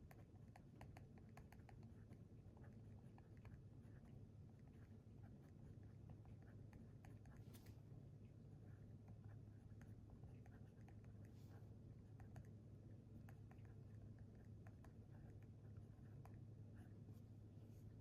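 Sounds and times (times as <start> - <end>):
steady low hum: 0.0 - 18.0
pen writing on paper: 9.1 - 11.3.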